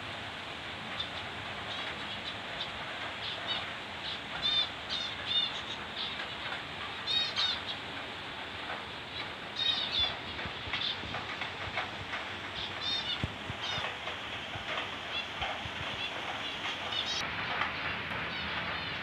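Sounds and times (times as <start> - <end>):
steady hiss: 0.0 - 19.0
small birds chirping: 1.0 - 6.4, 7.0 - 7.9, 9.1 - 11.2, 12.5 - 14.1, 15.0 - 17.2.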